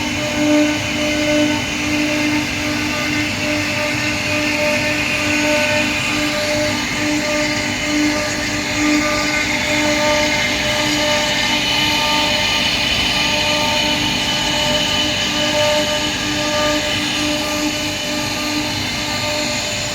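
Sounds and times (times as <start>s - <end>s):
router spindle whine: 0.0s - 19.9s.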